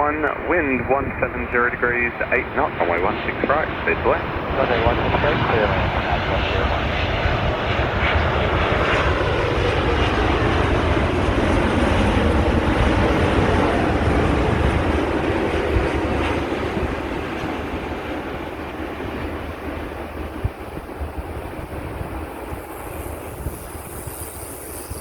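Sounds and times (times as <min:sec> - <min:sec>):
airliner jet engines passing: 0:00.0 - 0:25.0.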